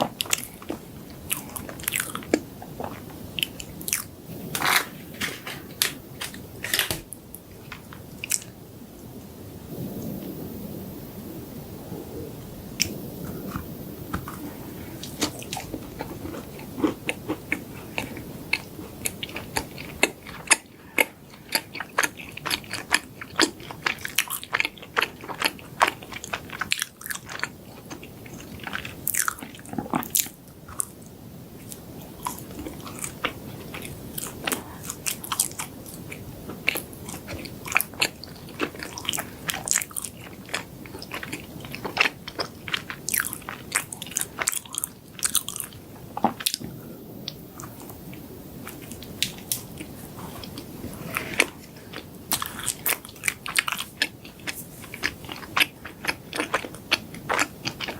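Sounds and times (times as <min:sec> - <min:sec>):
chewing: 0:00.0 - 0:08.6, 0:12.8 - 0:57.9
chocolate crunching: 0:12.8 - 0:31.1, 0:31.7 - 0:46.7, 0:47.3 - 0:57.9.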